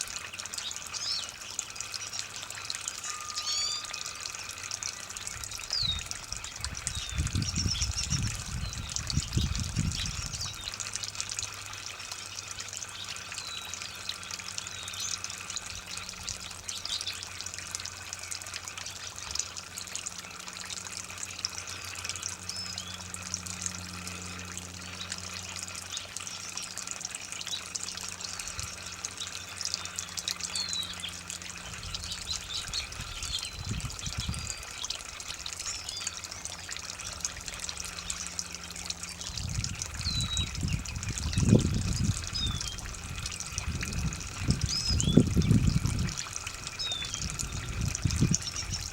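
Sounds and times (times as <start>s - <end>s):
water splashing and trickling: 0.0s - 48.9s
high bird chirps: 3.0s - 6.1s.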